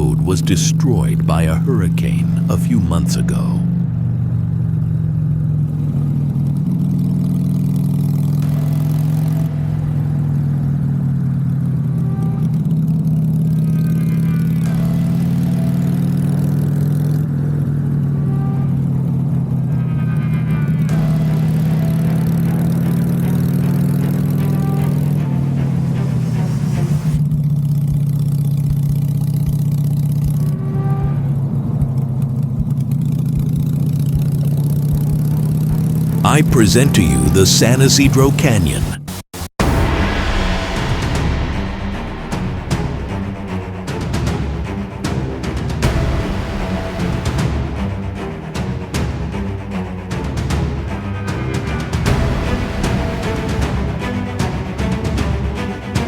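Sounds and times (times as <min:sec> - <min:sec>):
motorcycle engine running: 0:03.6 - 0:26.2, 0:27.2 - 0:36.2.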